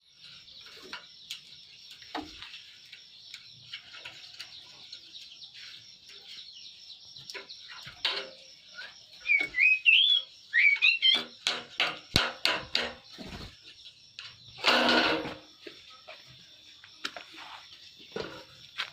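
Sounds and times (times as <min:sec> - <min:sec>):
bird singing warble: 0:00.0 - 0:14.7
high bird chirping: 0:04.4 - 0:14.6
harsh bird call: 0:09.2 - 0:11.3.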